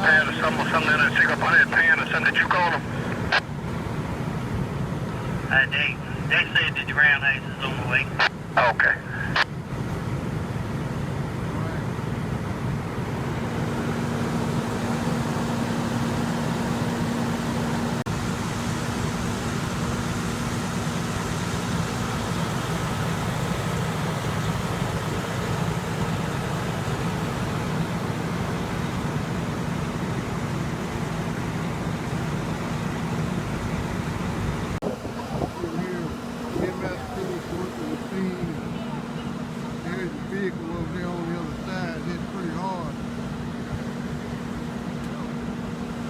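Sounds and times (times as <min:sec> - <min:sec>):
faint steady tones: 0:00.0 - 0:09.6
heavy diesel engines idling: 0:00.0 - 0:46.0.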